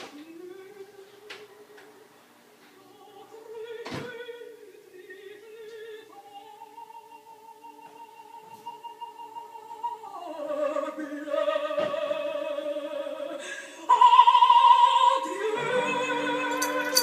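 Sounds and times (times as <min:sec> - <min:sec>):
operatic singing: 0:02.9 - 0:17.0
music: 0:05.4 - 0:17.0.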